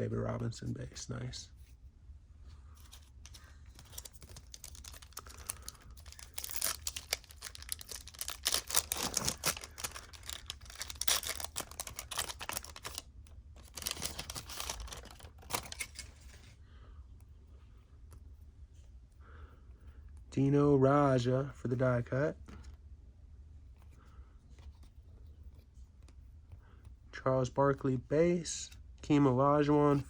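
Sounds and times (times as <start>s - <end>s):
cards clicking and sliding: 2.8s - 13.0s
wrapper tearing and crinkling: 3.3s - 16.3s.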